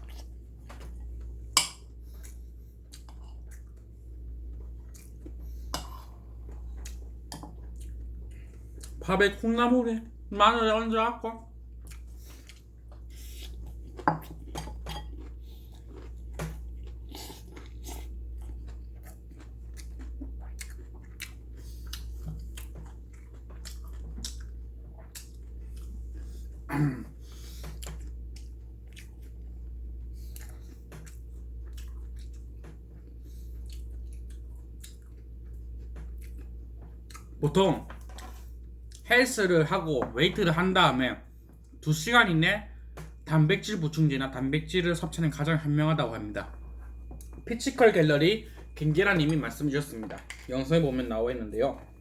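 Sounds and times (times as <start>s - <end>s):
chewing crunchy food: 0.0s - 9.4s, 11.5s - 39.1s, 46.4s - 52.0s
steady low hum: 0.0s - 52.0s.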